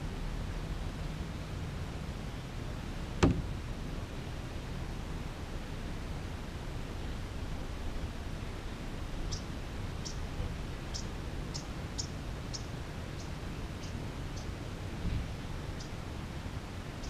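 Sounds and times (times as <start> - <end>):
low rumble and hiss: 0.0 - 17.0
small bird chirping: 9.3 - 10.3, 10.9 - 14.6, 15.7 - 16.0.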